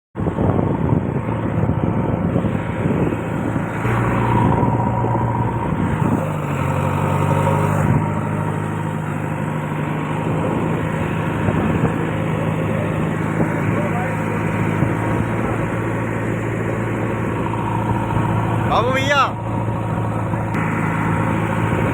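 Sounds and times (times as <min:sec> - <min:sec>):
diesel engine running: 0:00.2 - 0:21.9.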